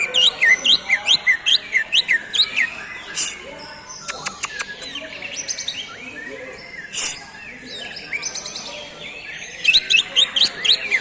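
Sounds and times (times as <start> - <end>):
bird whistling song: 0.0 - 8.6
bird clicking notes: 4.1 - 4.9.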